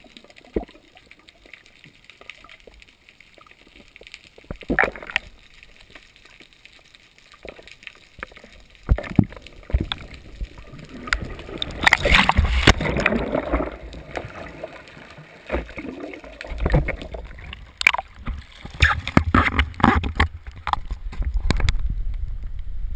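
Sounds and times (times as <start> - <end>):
water splashing around kayak paddle: 3.5 - 6.2, 7.3 - 21.9.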